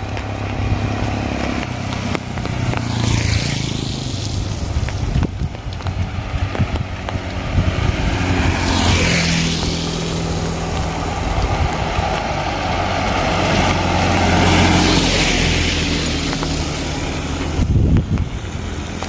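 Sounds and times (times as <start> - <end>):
low engine hum: 0.0 - 19.0
tyre hiss on wet road: 0.0 - 19.0.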